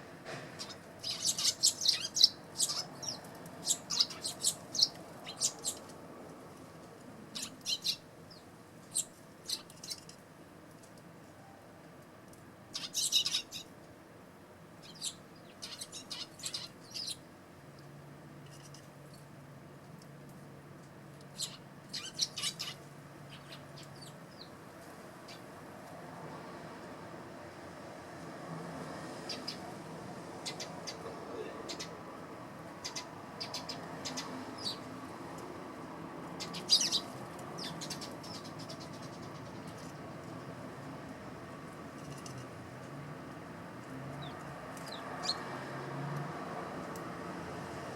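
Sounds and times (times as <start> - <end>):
sparrows chirping: 0.5 - 10.2, 12.6 - 13.8, 14.7 - 17.4, 18.4 - 19.4, 20.9 - 26.4, 29.0 - 42.6, 43.8 - 45.7.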